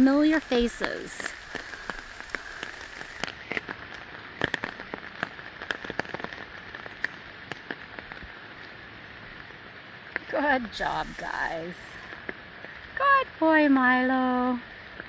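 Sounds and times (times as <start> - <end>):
raindrops tapping: 0.0 - 3.3
steady rain falling: 0.0 - 15.0.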